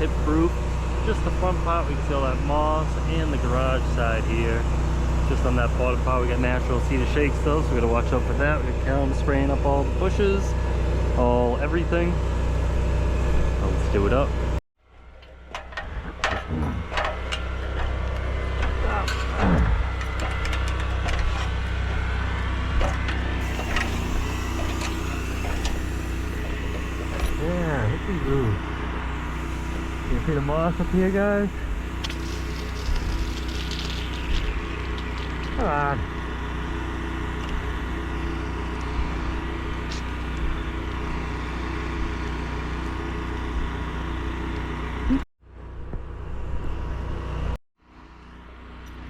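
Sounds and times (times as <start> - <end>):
spray rig engine hum: 0.0 - 14.6, 22.1 - 43.4
spraying hiss: 23.4 - 35.6.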